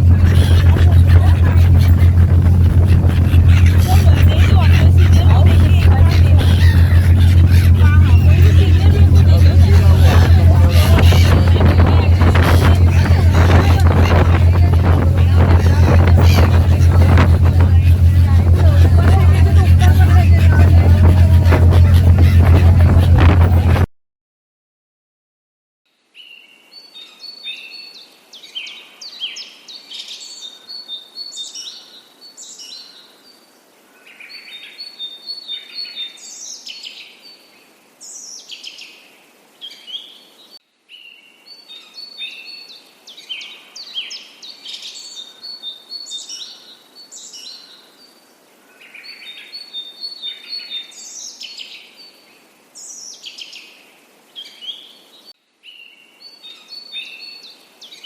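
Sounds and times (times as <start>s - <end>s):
songbirds singing: 0.0s - 23.8s
faint steady hiss: 36.2s - 58.0s.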